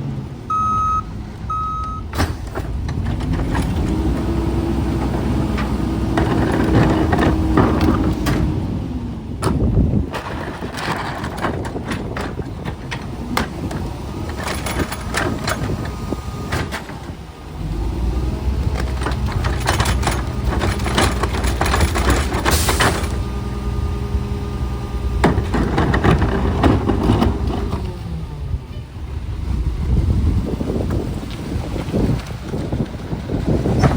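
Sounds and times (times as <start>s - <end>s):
garbage truck engine: 0.0s - 33.9s
metal clanks and knocks: 2.1s - 8.7s, 9.4s - 17.2s, 18.6s - 23.4s, 25.2s - 27.9s, 33.6s - 33.9s.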